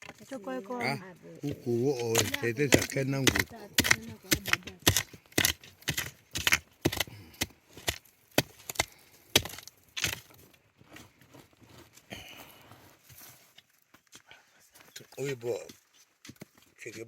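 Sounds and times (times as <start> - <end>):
hand tool striking sharp blows: 2.0 - 10.2.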